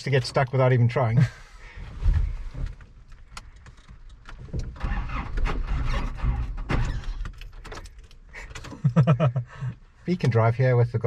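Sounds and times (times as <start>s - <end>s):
starter cranking engine: 4.6s - 8.8s.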